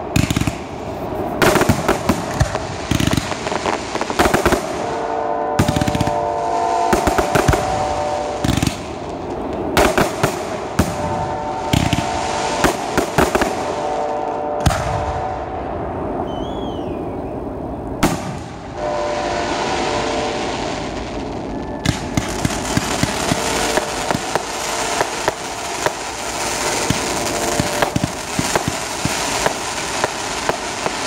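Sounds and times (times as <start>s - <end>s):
firework shells bursting: 0.0s - 14.0s, 21.8s - 31.0s
dense crackling: 0.0s - 14.9s, 21.8s - 31.0s.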